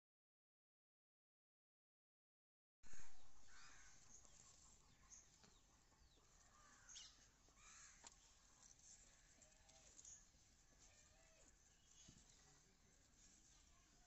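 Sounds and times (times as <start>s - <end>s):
faint birds chirping: 2.9s - 14.0s.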